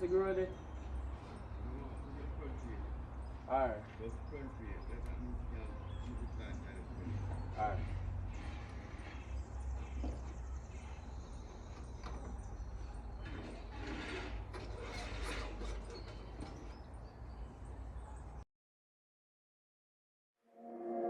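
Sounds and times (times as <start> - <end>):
diesel truck engine rumbling: 0.0 - 18.1
clanks and rattles: 11.7 - 16.9.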